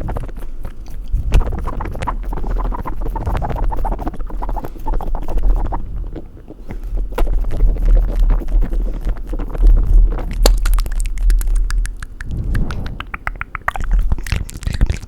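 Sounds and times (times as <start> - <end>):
wet mouth and tongue sounds: 0.0 - 15.0
low breathy rumble: 12.2 - 13.4.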